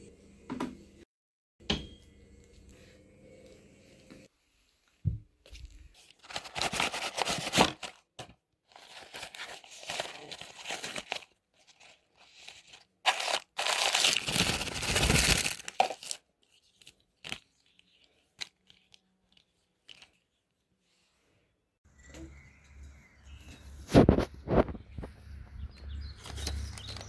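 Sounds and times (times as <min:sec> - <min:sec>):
crinkling and rustling: 0:04.2 - 0:20.7, 0:26.0 - 0:27.0.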